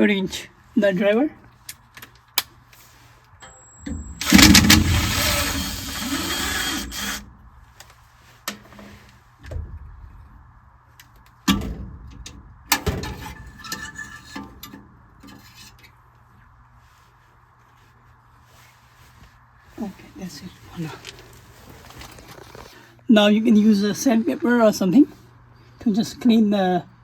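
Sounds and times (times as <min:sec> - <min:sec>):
power nut driver running: 0:03.4 - 0:07.3.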